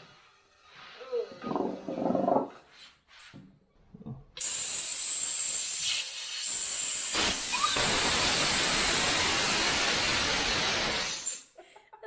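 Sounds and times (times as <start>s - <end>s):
compressed air hissing from valve: 4.4s - 11.5s.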